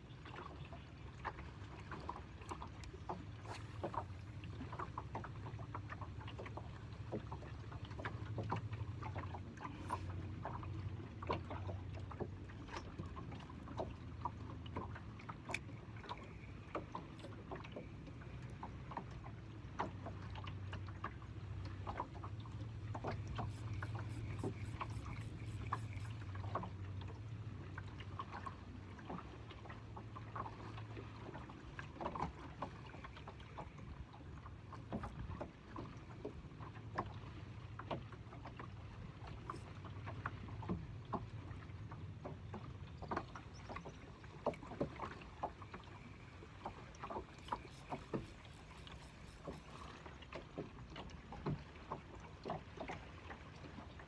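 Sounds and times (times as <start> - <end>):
water lapping against boat hull: 0.0 - 54.0
low steady rumble: 0.8 - 17.2, 17.8 - 31.8.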